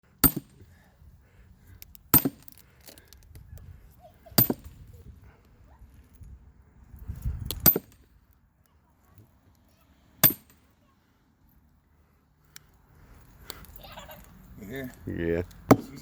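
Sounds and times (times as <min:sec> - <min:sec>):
sledgehammer striking steel wedge: 0:00.2 - 0:00.6, 0:02.1 - 0:02.5, 0:04.4 - 0:04.7, 0:07.5 - 0:08.0, 0:10.2 - 0:10.6, 0:15.7 - 0:16.0.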